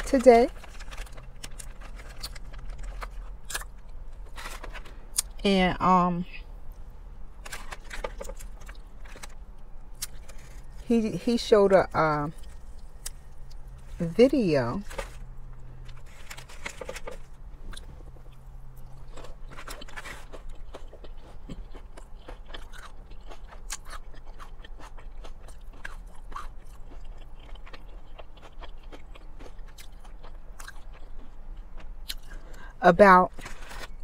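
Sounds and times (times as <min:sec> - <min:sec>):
crunching bites of fried chicken: 0:15.8 - 0:32.7.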